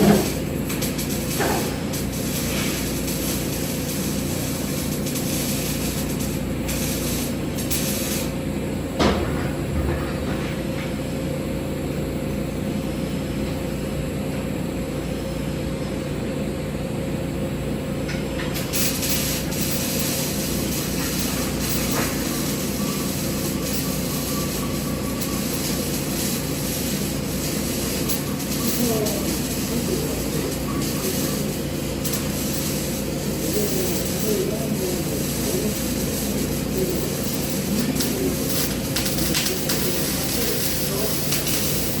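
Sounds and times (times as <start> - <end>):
welding machine hum and hiss: 0.0 - 42.0
high-pitched hiss: 18.6 - 42.0.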